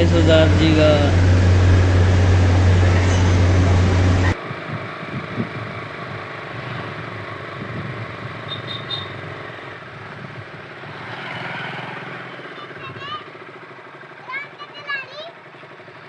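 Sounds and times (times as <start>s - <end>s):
low uneven rumble: 0.0s - 4.4s
wind rush on microphone: 0.0s - 8.5s.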